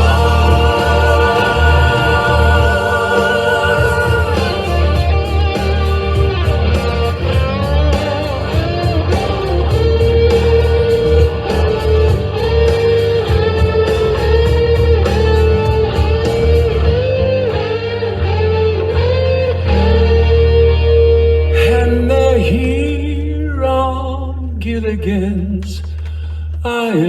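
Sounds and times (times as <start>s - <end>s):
steady cymbal beat: 0.0s - 17.0s
electric guitar melody: 0.0s - 22.0s
bass: 0.0s - 27.0s.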